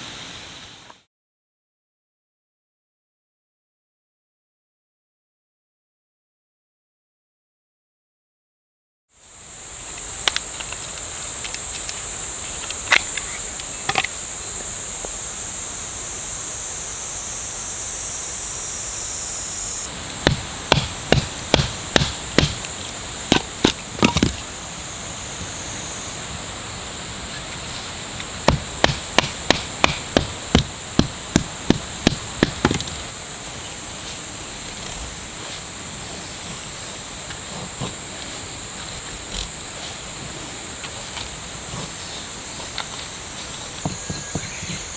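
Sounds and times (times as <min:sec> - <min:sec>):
insects droning: 0:00.0 - 0:01.0, 0:09.2 - 0:44.9
chopping strikes: 0:19.9 - 0:25.0, 0:27.7 - 0:33.1, 0:43.5 - 0:44.9.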